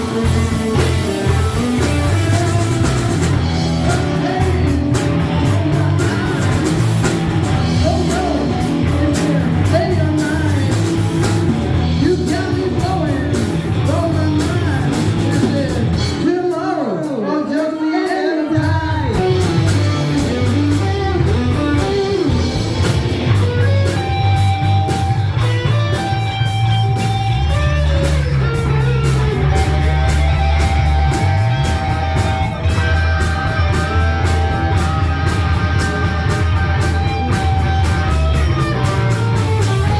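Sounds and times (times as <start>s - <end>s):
electric guitar bending notes: 0.0s - 16.2s, 18.8s - 39.9s
bass and drums: 0.0s - 17.2s, 18.5s - 39.9s.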